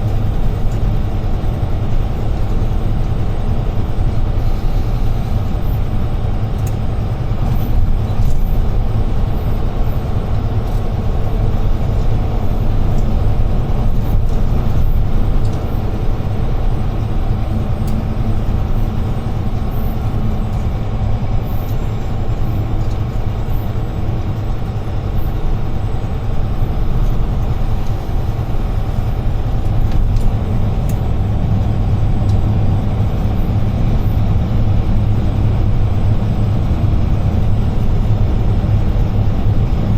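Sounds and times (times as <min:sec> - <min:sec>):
road and tyre noise: 0:00.0 - 0:39.9
truck diesel engine drone: 0:00.0 - 0:39.9.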